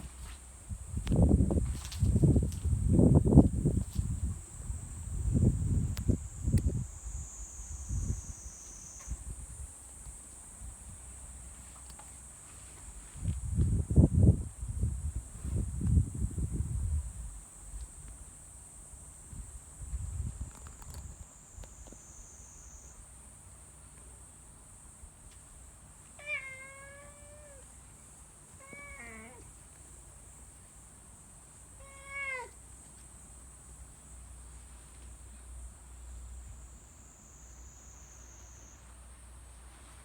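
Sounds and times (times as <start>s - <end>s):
cat meowing: 26.2s - 27.7s, 28.6s - 29.5s, 31.8s - 32.6s.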